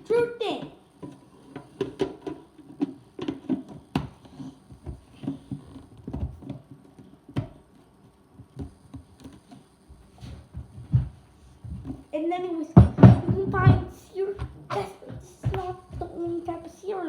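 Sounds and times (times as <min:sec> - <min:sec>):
household items knocking and clicking: 0:00.6 - 0:07.6, 0:12.8 - 0:16.5.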